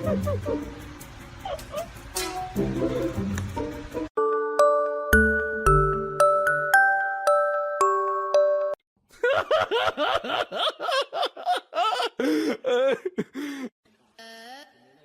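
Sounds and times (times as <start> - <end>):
person laughing: 0.0 - 0.7, 1.4 - 2.0, 9.1 - 14.7.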